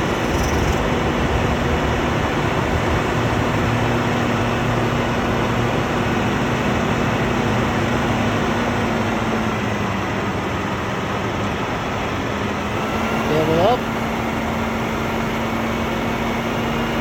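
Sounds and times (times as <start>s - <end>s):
fan rushing: 0.0s - 4.8s.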